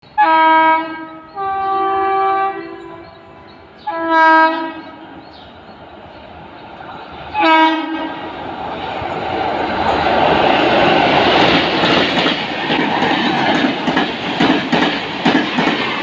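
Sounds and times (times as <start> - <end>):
locomotive horn blasts: 0.2 - 5.1, 7.4 - 8.2
train rumble: 2.2 - 16.0.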